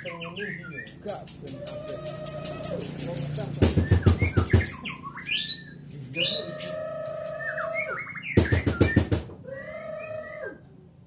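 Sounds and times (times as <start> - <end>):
bird whistling song: 0.0 - 1.2, 3.7 - 10.6
bird rattling call: 0.8 - 5.0.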